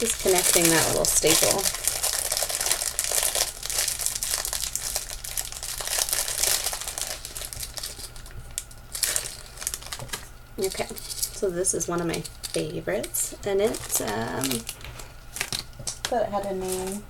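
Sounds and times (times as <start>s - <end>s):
packaging bag crinkling: 0.0s - 17.0s.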